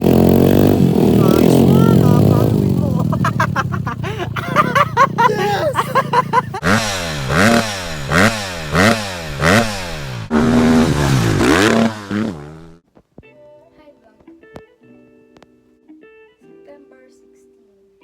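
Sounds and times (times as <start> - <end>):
motorbike engine revving: 0.0 - 12.8.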